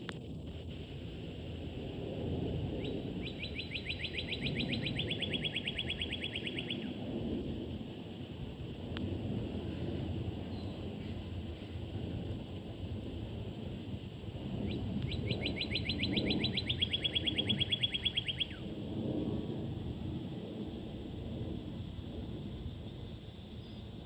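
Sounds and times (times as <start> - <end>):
low outdoor rumble: 0.0 - 24.0
small bird trilling: 15.1 - 18.6.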